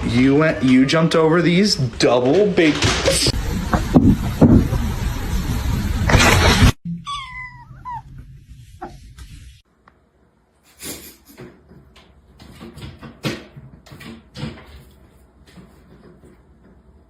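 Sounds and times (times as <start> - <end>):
knocks and bumps: 1.9 - 5.1.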